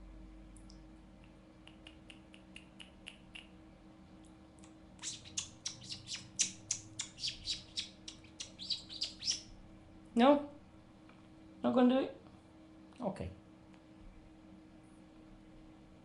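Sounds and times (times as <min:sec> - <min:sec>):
cockatiel chirping: 0:05.0 - 0:09.5.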